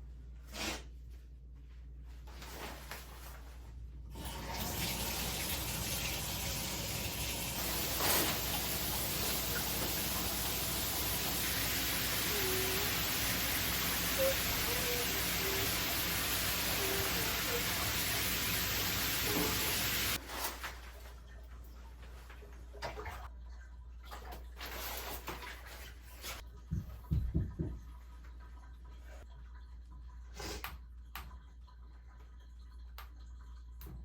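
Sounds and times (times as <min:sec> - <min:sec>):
tap water running into sink: 0:04.1 - 0:20.2.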